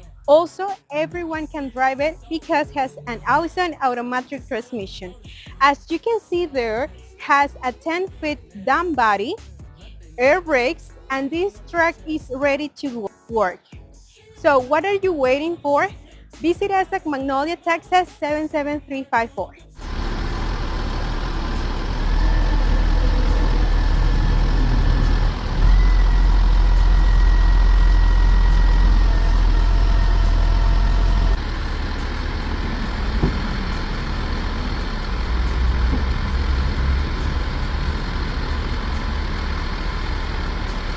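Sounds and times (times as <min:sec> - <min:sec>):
thin whine: 0:19.8 - 0:40.9
truck diesel engine idling: 0:19.8 - 0:40.9.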